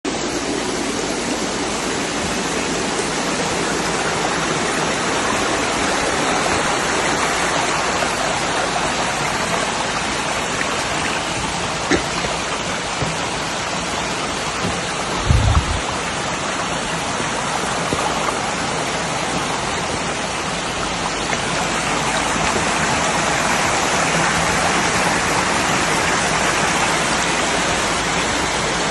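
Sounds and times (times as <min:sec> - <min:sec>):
fast-flowing stream water: 0:00.0 - 0:28.9
low thump: 0:14.6 - 0:15.8.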